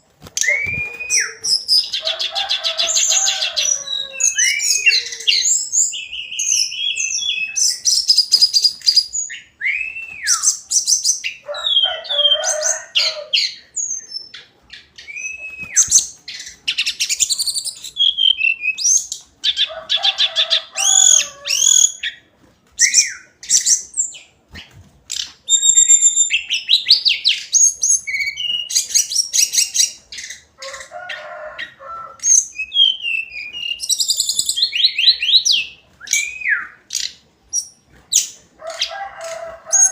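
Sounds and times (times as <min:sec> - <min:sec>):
bird singing whistled trills: 0:00.4 - 0:01.9, 0:04.2 - 0:11.3, 0:15.0 - 0:16.1, 0:25.5 - 0:30.0, 0:32.3 - 0:36.8.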